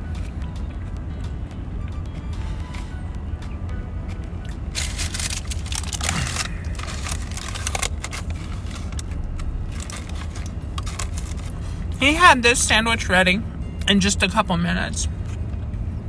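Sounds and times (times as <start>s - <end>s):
car cabin rumble: 0.0s - 16.0s
paper wrapping crinkling: 4.8s - 11.8s.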